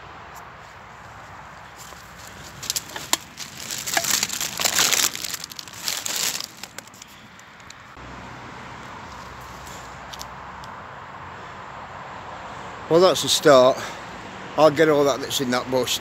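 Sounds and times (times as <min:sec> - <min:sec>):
rubbish bag crinkling: 0:01.8 - 0:07.8.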